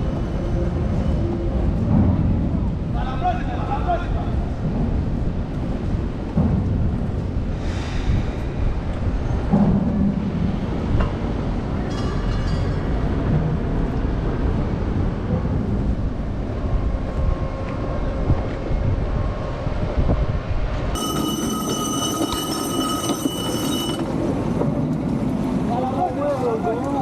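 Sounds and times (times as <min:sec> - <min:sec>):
wind buffeting microphone: 0:00.0 - 0:11.9, 0:12.7 - 0:21.0.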